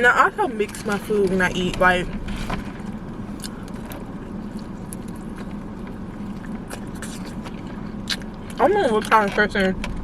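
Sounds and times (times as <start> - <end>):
car interior hum: 0.0 - 10.0
person chewing: 2.2 - 8.6.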